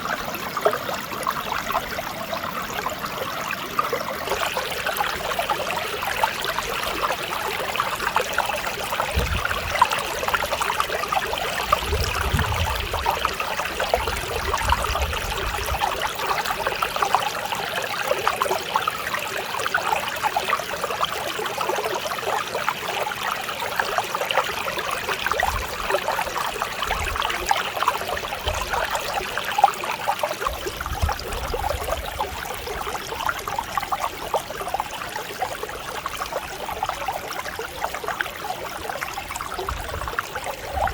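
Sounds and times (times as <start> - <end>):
stream flowing over rocks: 0.0 - 40.9.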